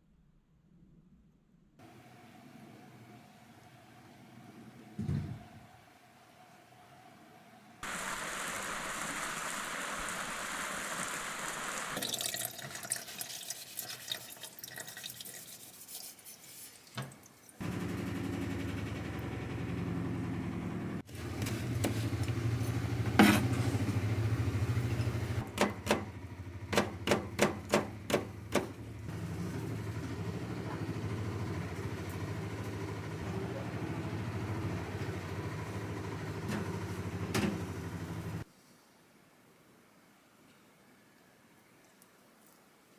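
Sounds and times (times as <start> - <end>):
water running from a tap: 12.0 - 17.2.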